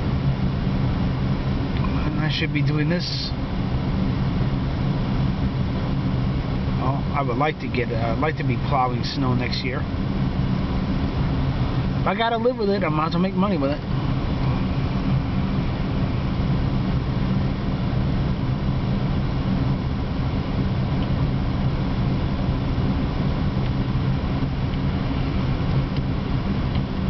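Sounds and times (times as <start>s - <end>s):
car engine humming inside cabin: 0.0s - 27.0s.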